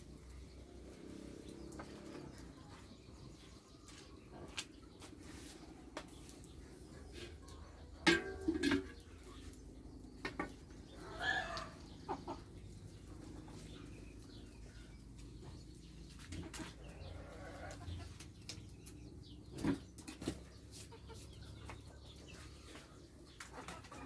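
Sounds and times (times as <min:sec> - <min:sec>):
farm animals calling: 0:00.0 - 0:24.0.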